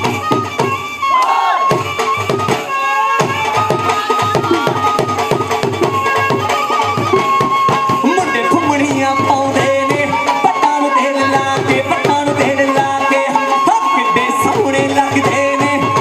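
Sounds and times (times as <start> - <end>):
bhangra drum beat: 0.0 - 16.0.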